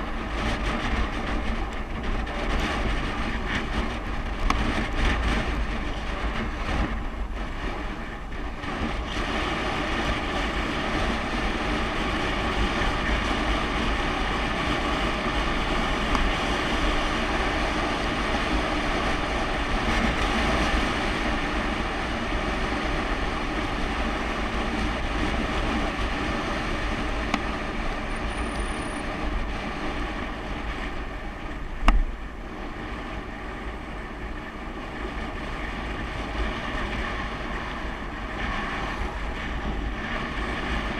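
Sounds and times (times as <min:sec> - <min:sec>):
deep rumble: 0:00.0 - 0:40.9
wind buffeting microphone: 0:00.0 - 0:40.9.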